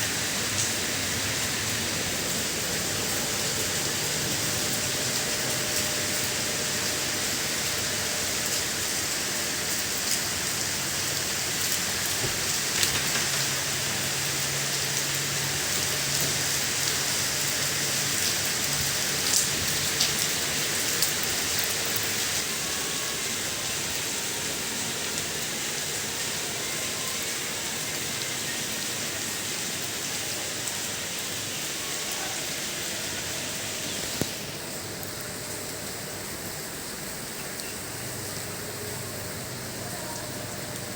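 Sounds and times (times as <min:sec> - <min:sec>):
steady rain hissing: 0:00.0 - 0:40.9.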